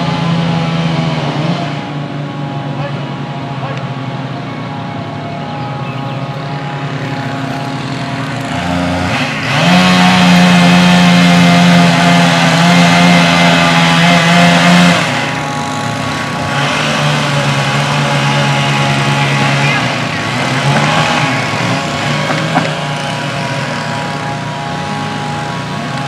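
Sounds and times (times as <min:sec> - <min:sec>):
chainsaw engine revving: 0:05.9 - 0:26.0.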